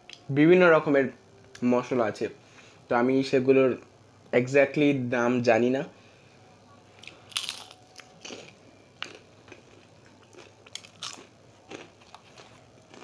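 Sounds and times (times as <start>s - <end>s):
person chewing crunchy food: 7.0s - 13.0s.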